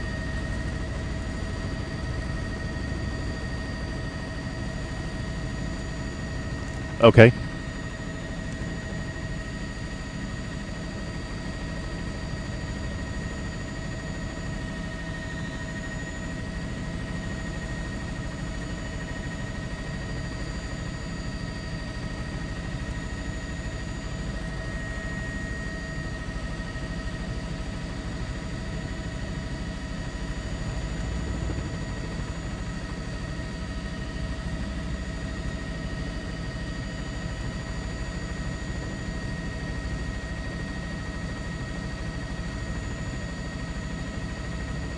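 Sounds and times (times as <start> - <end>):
helicopter engine and rotor drone: 0.0 - 44.9.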